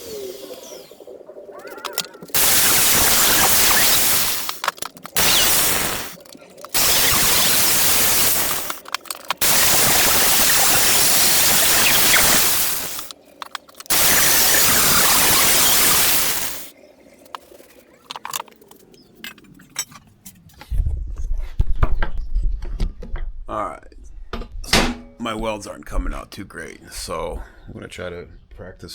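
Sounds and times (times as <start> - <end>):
welding arc hissing and crackling: 1.8 - 16.8.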